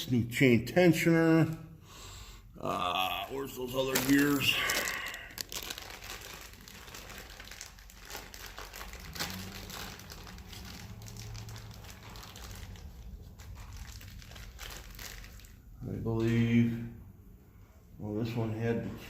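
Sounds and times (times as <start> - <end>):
plastic packaging crinkling: 3.0 - 15.7.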